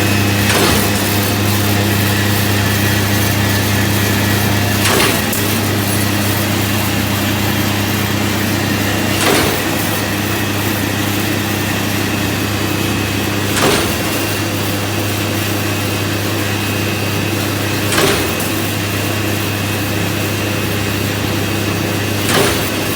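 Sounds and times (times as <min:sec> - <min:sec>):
shear clacking as it cuts wire: 0:00.0 - 0:07.7
wire straightening machine humming: 0:00.0 - 0:22.9.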